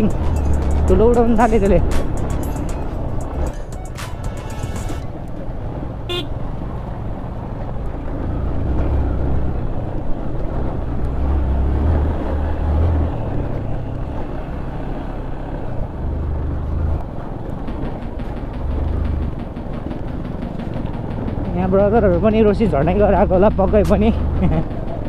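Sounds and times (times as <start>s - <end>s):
motorcycle engine: 0.0s - 25.0s
horn beep: 2.4s - 5.1s, 6.1s - 6.3s.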